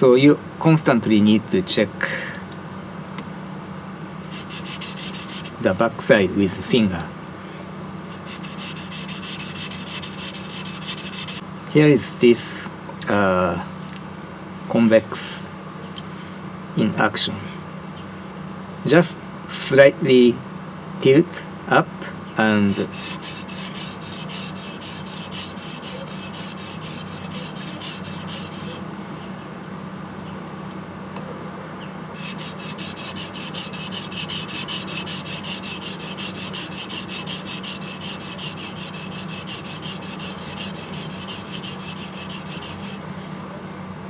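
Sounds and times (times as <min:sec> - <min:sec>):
knife scraping on whetstone: 0:04.3 - 0:05.7, 0:08.1 - 0:11.4, 0:22.7 - 0:28.8, 0:32.2 - 0:43.0.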